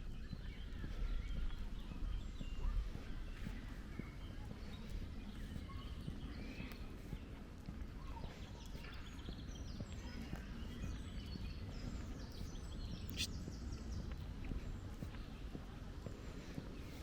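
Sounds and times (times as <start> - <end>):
small birds singing: 0.0 - 17.0.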